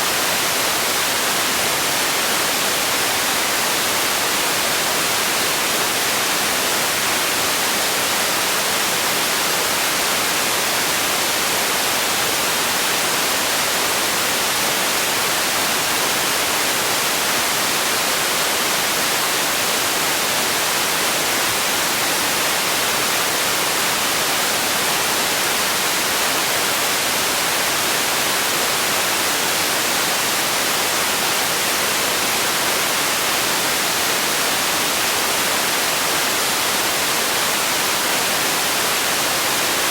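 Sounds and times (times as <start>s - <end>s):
steady sleep noise hiss: 0.0s - 39.9s.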